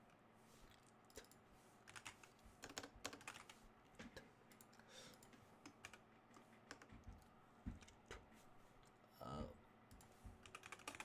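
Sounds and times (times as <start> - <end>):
computer keyboard typing: 0.7 - 3.6, 4.5 - 8.0, 9.9 - 11.0.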